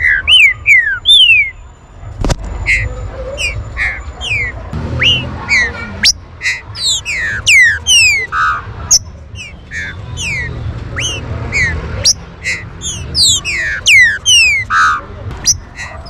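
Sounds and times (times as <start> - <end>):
birds whistling downward notes: 0.0 - 1.6, 2.7 - 16.0
steady low rumble: 12.4 - 16.0.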